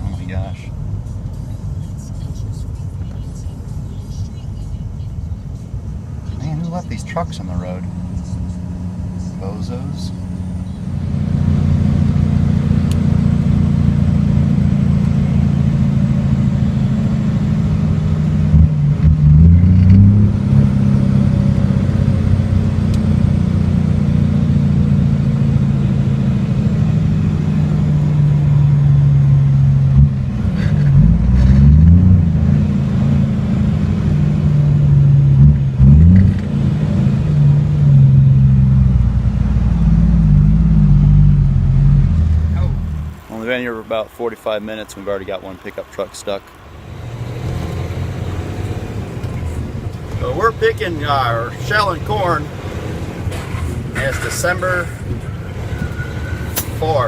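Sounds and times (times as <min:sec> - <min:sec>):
truck engine droning: 0:00.0 - 0:57.0.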